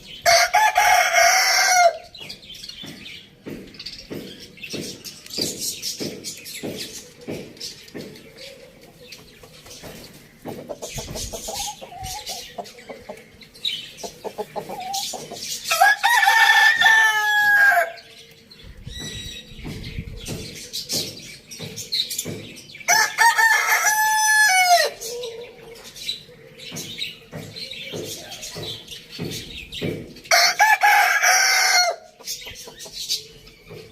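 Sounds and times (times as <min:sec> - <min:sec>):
rooster crowing: 0:00.3 - 0:02.1, 0:15.7 - 0:18.0, 0:22.9 - 0:25.0, 0:30.3 - 0:32.1
chickens clucking softly: 0:06.6 - 0:15.8, 0:32.0 - 0:33.9.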